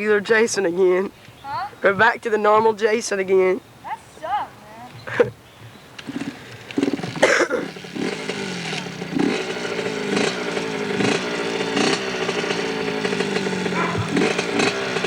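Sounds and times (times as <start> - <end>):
dirt bike engine revving: 6.0 - 15.0.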